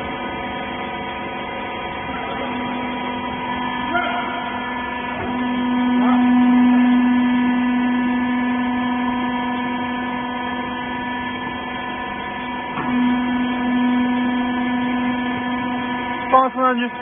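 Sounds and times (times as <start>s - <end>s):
hydraulic power unit humming: 0.0s - 17.0s.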